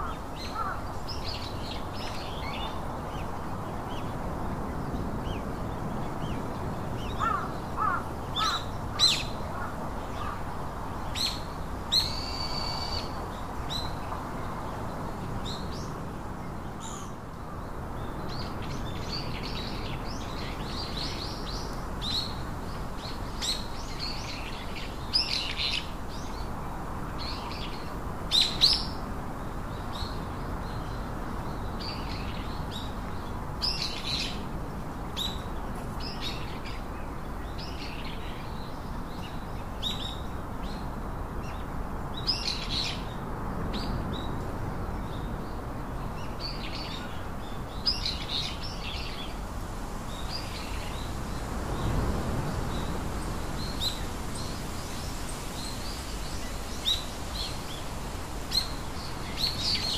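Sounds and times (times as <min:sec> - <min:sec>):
low background hiss: 0:00.0 - 0:59.9
small birds chirping: 0:50.0 - 0:59.9.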